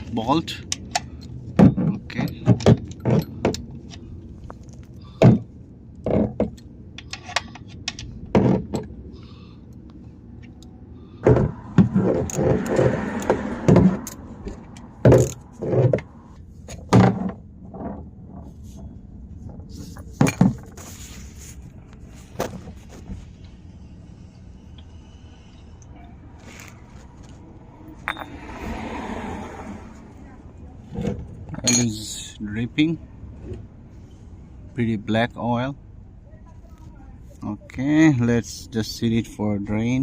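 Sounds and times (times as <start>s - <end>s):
ratchet and socket clanking: 14.8s - 15.5s.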